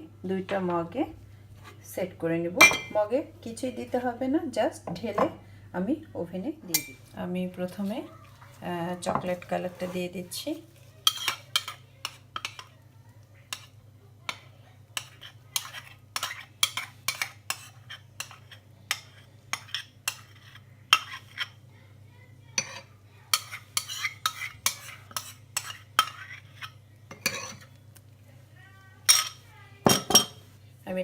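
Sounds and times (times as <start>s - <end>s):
spoon clinking and scraping bowl: 6.7s - 7.1s, 10.8s - 12.7s, 15.0s - 21.6s, 22.6s - 27.7s, 29.1s - 30.4s.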